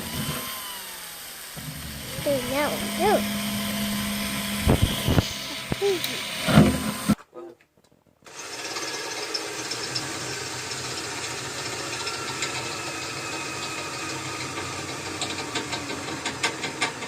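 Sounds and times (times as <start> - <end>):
cordless drill drilling: 0.0 - 7.2, 8.3 - 17.0.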